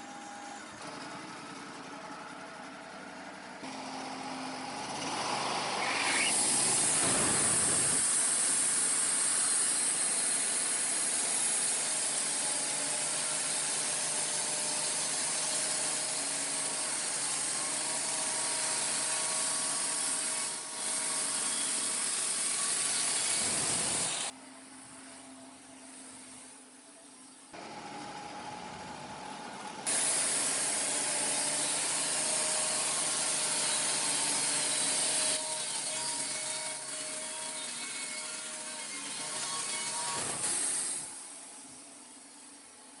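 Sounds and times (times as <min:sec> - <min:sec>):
bandsaw blade sawing log: 0:04.6 - 0:24.3, 0:29.8 - 0:41.1.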